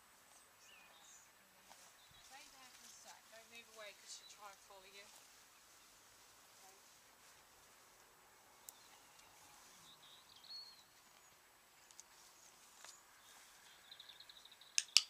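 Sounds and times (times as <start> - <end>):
sharp clicks: 14.7 - 15.0.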